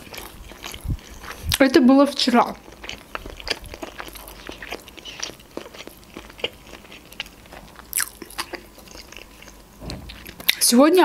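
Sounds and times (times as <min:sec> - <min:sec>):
person chewing: 0:00.0 - 0:01.6, 0:02.4 - 0:10.7.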